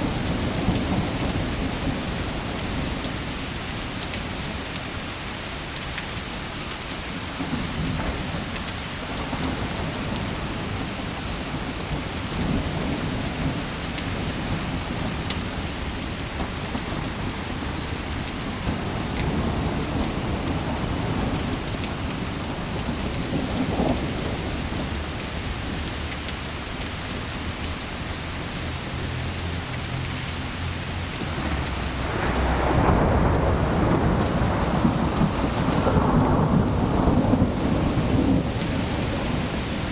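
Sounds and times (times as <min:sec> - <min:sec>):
thunder rumbling: 0:00.0 - 0:03.4, 0:07.4 - 0:25.8, 0:30.6 - 0:39.9
heavy rain: 0:00.0 - 0:39.9.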